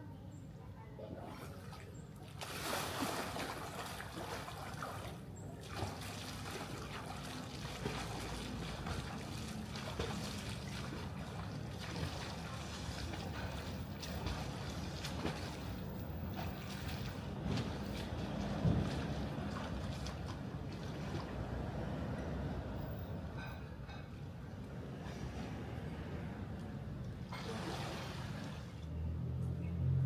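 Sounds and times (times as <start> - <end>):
pool water sloshing and trickling: 0.9 - 30.0.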